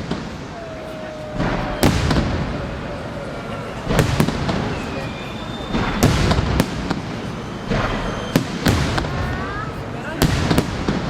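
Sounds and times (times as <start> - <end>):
fireworks bangs: 0.0 - 11.0
fireworks crackling rumble: 0.0 - 11.0.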